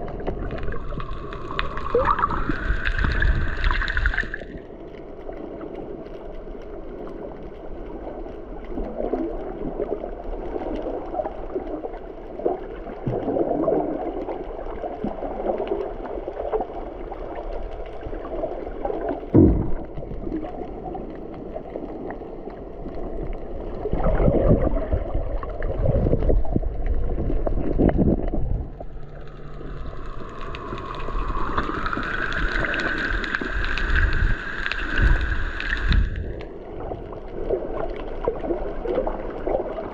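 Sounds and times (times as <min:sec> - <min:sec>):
thumps: 0:19.4 - 0:20.0
steady whine: 0:28.2 - 0:37.0.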